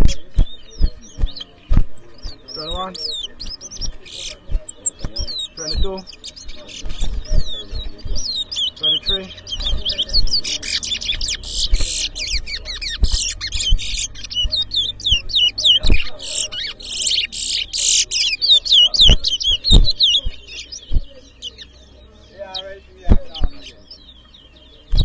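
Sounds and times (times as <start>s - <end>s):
low thumps: 0.0s - 16.2s, 19.0s - 21.4s, 23.0s - 23.7s
finch singing high whistles: 0.0s - 21.8s.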